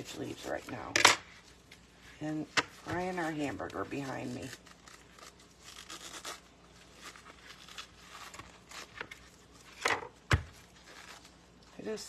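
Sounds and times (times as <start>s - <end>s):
cabbage leaves tearing: 2.2s - 9.8s, 10.5s - 11.6s.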